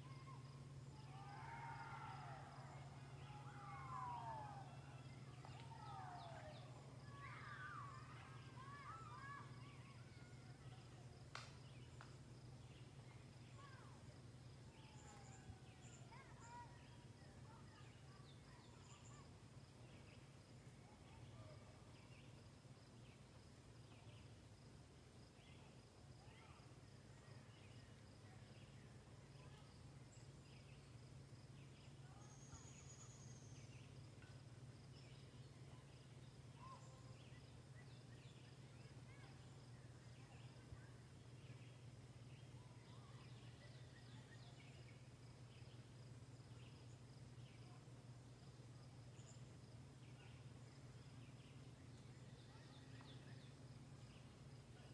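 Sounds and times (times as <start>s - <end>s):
low steady hum: 0.0s - 54.9s
bird calls and chirps: 31.6s - 34.0s.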